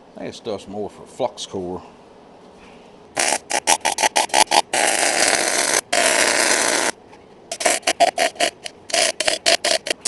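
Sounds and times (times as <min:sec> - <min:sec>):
welder arc crackling: 0:03.2 - 0:10.0.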